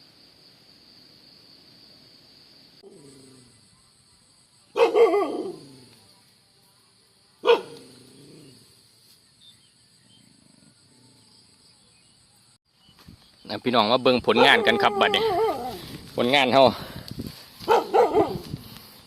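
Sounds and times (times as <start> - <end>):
dog barking: 4.7 - 5.7, 7.4 - 7.9, 14.4 - 15.8, 17.6 - 18.5.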